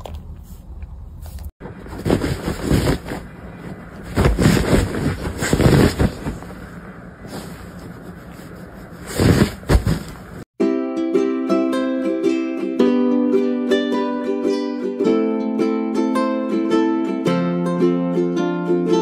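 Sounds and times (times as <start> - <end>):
bedding rustling: 1.2 - 10.5.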